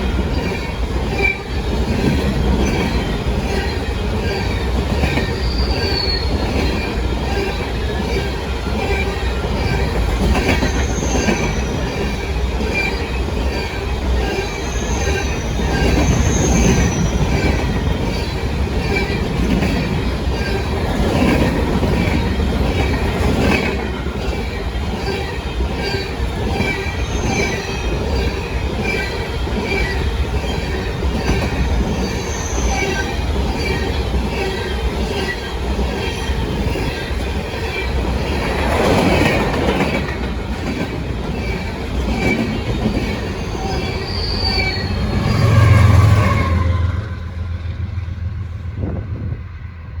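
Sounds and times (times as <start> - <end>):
freight train wheels clicking: 0.0 - 48.3
diesel locomotive engine hum: 0.0 - 50.0.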